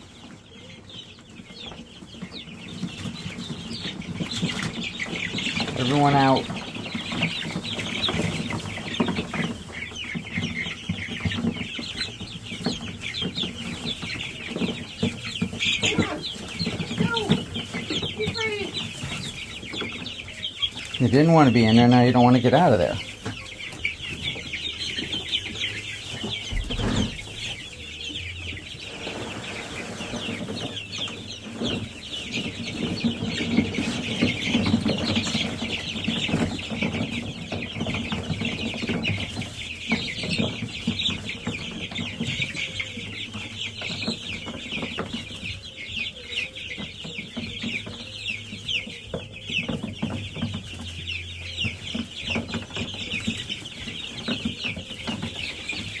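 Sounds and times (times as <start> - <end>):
chicks peeping: 0.0 - 56.0.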